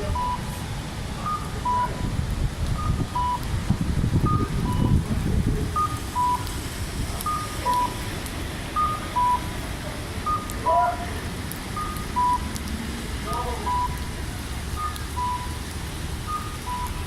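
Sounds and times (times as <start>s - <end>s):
strong wind gusting on microphone: 0.0s - 13.3s.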